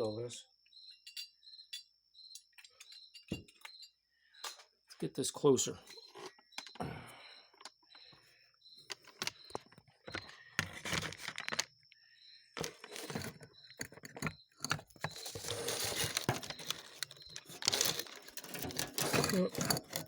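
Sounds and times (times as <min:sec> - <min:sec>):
small parts clicking and tapping: 0:06.2 - 0:06.8, 0:07.5 - 0:08.1, 0:08.8 - 0:12.0, 0:12.6 - 0:20.0
scraping and rustling: 0:09.0 - 0:11.7, 0:12.6 - 0:20.0.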